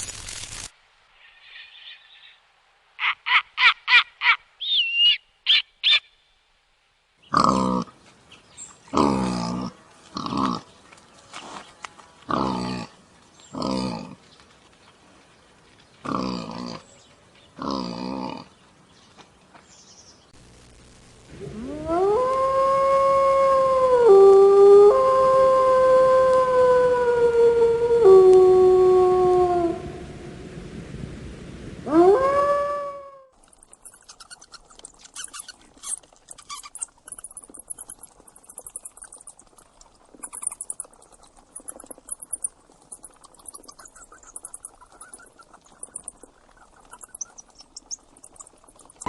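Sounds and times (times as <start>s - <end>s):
bird chirping: 4.2s - 6.4s, 33.6s - 39.6s, 40.2s - 49.0s
dog howling: 21.5s - 29.8s.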